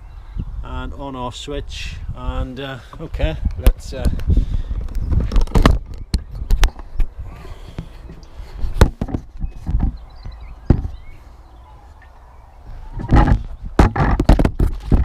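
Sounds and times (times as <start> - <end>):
equipment knocks and clunks: 8.8 - 11.0, 13.0 - 15.0.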